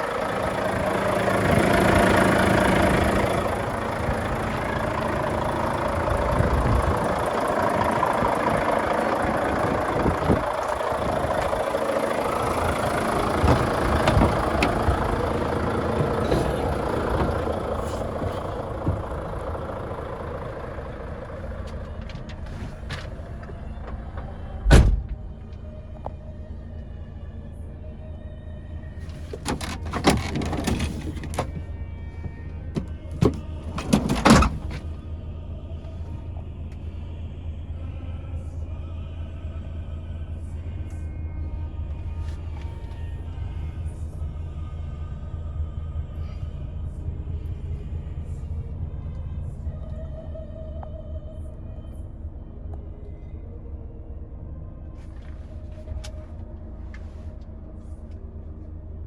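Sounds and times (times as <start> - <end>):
diesel truck engine running: 0.0 - 59.0
heavy thud: 13.2 - 19.3.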